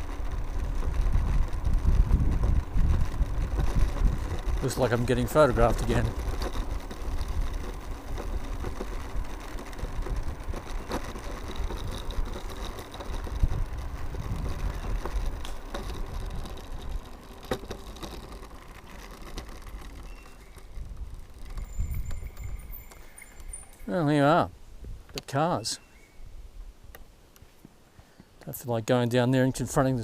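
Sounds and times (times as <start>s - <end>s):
wind buffeting microphone: 0.0s - 17.2s, 20.0s - 23.8s
faint electric motor whine: 0.0s - 28.2s
tyre and road noise: 0.0s - 30.0s.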